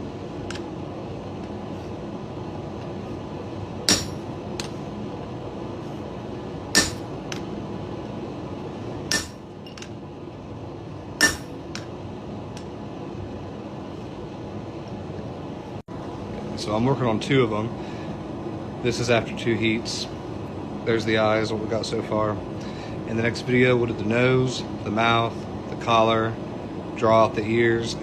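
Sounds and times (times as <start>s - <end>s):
hammer striking metal punch: 3.8s - 4.8s, 6.7s - 7.4s, 9.1s - 9.9s, 11.2s - 11.9s.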